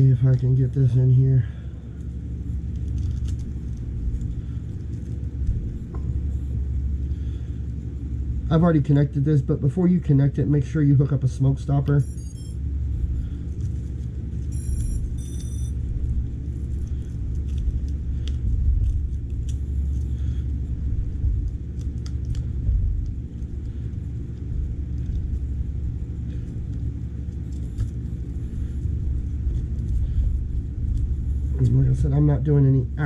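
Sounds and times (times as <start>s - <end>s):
low rumble: 0.0s - 33.0s
short high electronic beeps: 12.0s - 12.6s, 14.5s - 15.7s.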